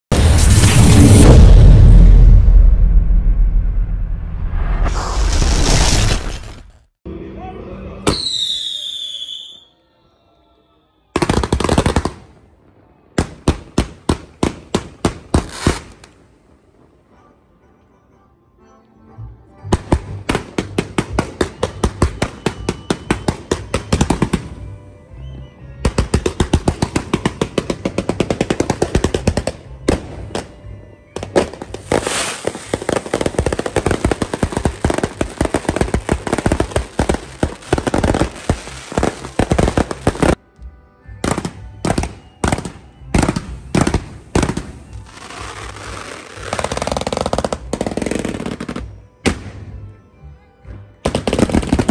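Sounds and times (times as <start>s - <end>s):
firework bangs: 31.2s - 40.4s, 41.2s - 49.6s.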